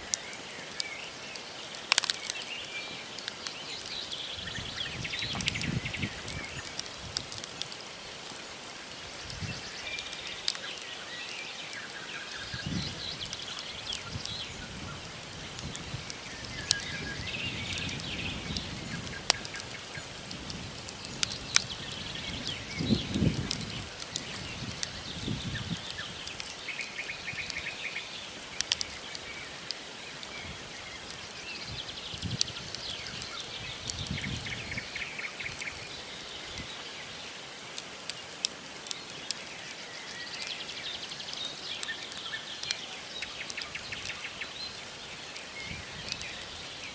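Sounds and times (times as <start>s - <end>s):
burning logs popping: 0.0s - 46.9s
campfire crackling: 0.0s - 46.9s
small birds calling: 0.0s - 46.9s.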